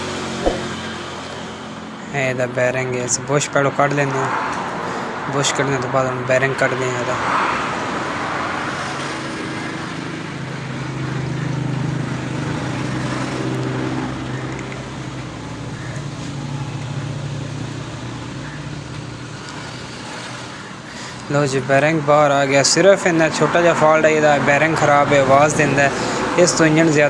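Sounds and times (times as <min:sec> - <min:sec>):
noisy rush: 0:00.4 - 0:01.1.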